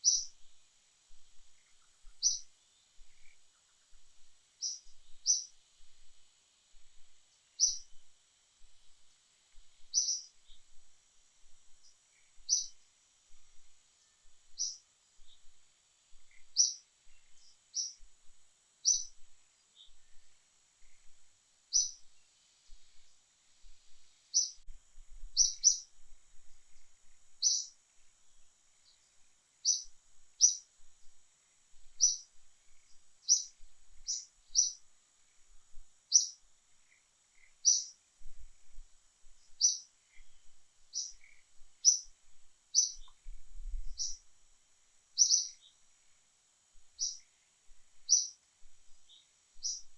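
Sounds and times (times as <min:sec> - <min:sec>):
bird chirping: 0:00.0 - 0:00.6, 0:01.3 - 0:05.6, 0:07.6 - 0:08.0, 0:08.8 - 0:10.8, 0:11.7 - 0:15.5, 0:16.1 - 0:18.1, 0:18.8 - 0:21.1, 0:21.7 - 0:24.6, 0:25.4 - 0:25.9, 0:27.0 - 0:27.8, 0:28.8 - 0:30.7, 0:32.0 - 0:34.9, 0:36.1 - 0:38.0, 0:39.4 - 0:42.1, 0:42.7 - 0:44.3, 0:45.2 - 0:45.8, 0:47.0 - 0:47.4, 0:48.0 - 0:49.9.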